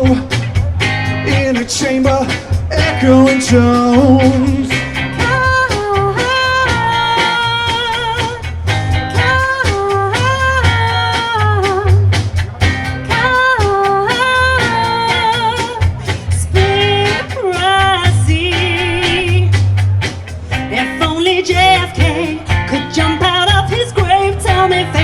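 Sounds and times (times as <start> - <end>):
bass: 0.0 - 25.0
drums: 0.0 - 25.0
lead melody line: 12.8 - 25.0.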